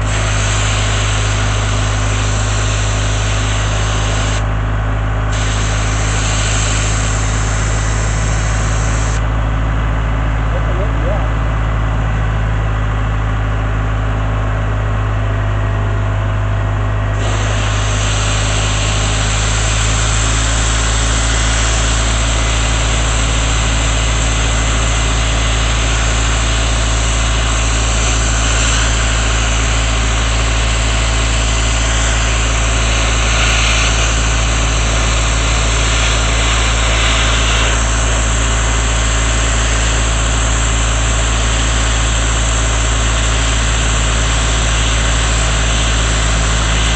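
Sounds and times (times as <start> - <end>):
sandblaster nozzle hissing: 0.0 - 4.5, 5.3 - 9.2, 17.2 - 46.9
air compressor engine running: 0.0 - 46.9.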